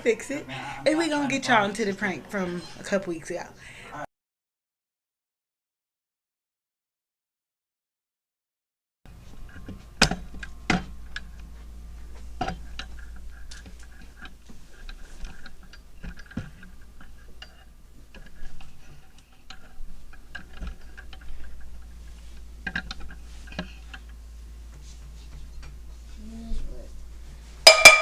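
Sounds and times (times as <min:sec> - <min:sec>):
steady low hum: 0:09.1 - 0:28.0.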